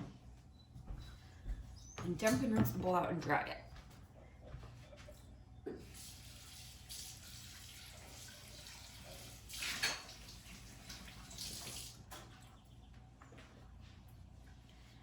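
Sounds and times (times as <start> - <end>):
tap water running into a bowl: 5.8 - 12.2.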